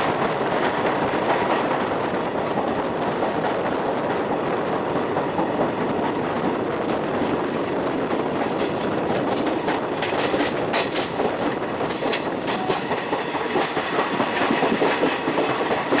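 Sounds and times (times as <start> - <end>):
train running noise: 0.0 - 16.0
wheels clacking over rail joints: 4.3 - 16.0.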